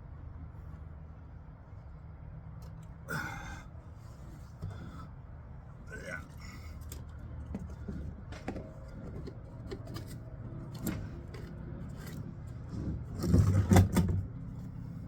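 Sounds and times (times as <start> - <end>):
light clicks and scrapes of handling: 6.7 - 15.0.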